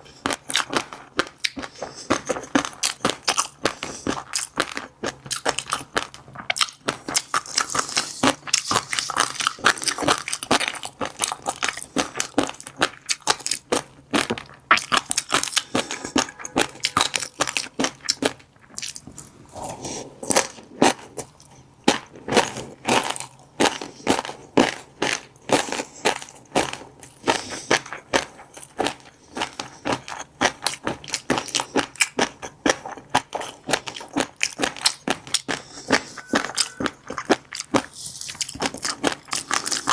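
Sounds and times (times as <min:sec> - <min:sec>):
chewing crackling fish roe: 0:00.0 - 0:39.9.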